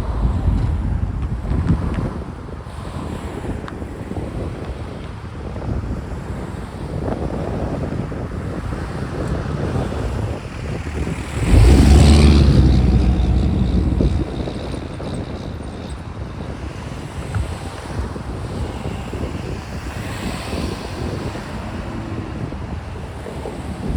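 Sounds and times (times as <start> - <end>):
wind on microphone: 0.0 - 23.9
diesel locomotive engine drone: 9.8 - 23.9
freight train rolling past: 10.0 - 17.0.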